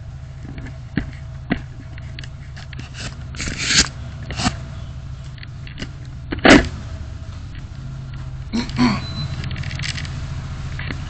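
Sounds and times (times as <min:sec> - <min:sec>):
scraping rustling noise: 0:00.0 - 0:04.6
car cabin hum: 0:00.0 - 0:11.0.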